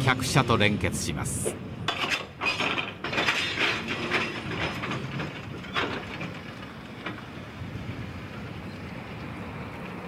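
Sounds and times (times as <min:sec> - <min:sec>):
rail cars clanking and rattling: 0:00.0 - 0:10.0.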